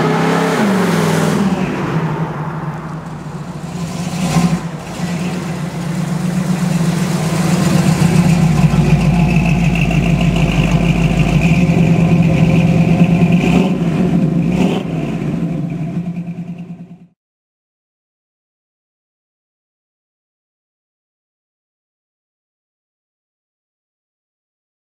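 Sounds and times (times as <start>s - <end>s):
car engine running: 0.0s - 17.1s.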